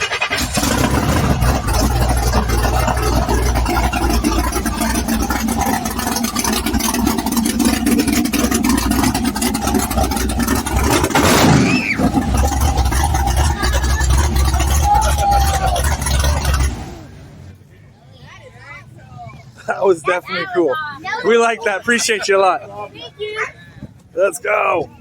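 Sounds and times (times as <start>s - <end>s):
truck engine running loud: 0.0s - 17.9s.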